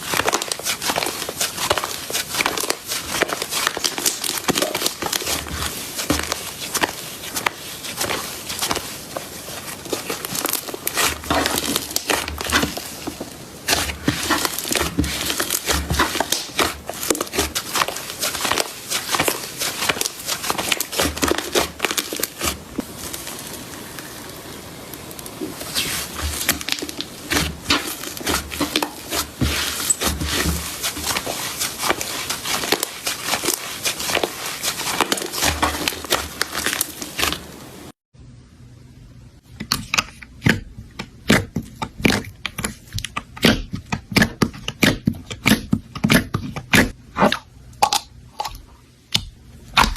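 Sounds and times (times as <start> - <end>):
slime squished by hand: 0.0 - 24.4, 25.1 - 37.7.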